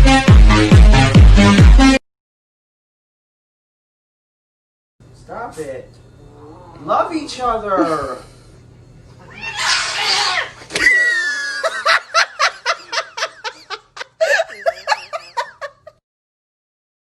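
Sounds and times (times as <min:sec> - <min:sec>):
person laughing hard: 0:10.7 - 0:16.0.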